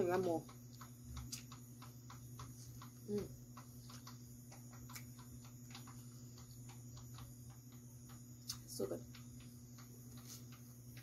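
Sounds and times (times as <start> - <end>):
mouth clicks chewing corn: 0.0 - 11.0.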